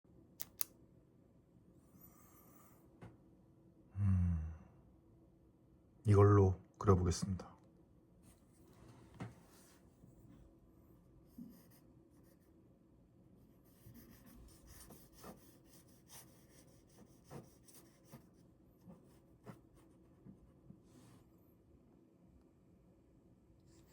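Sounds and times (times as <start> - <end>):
pen scratching on paper: 13.6 - 20.2.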